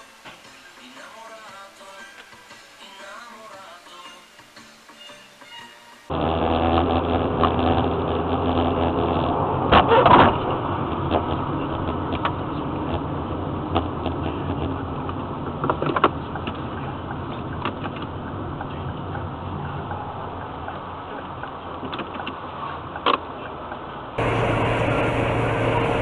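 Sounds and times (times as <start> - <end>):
car engine and road noise: 6.0 - 26.0.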